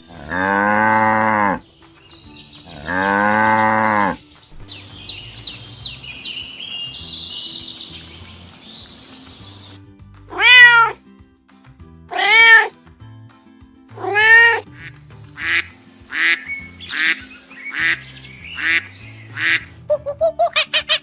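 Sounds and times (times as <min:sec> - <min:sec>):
soft background music: 0:00.0 - 0:21.0
cat meowing: 0:10.3 - 0:11.0, 0:12.1 - 0:12.7, 0:14.0 - 0:14.6.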